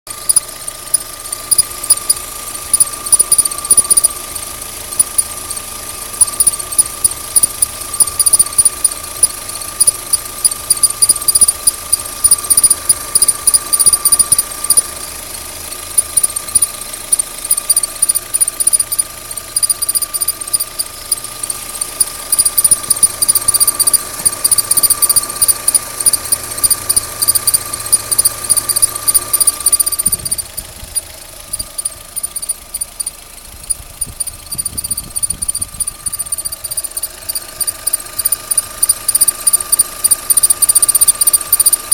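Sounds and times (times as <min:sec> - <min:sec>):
fast light ticking: 0:00.1 - 0:14.9, 0:15.8 - 0:41.9
car engine idling: 0:00.1 - 0:41.9
high-pitched whistle: 0:16.0 - 0:21.6, 0:22.3 - 0:30.6, 0:31.5 - 0:41.9.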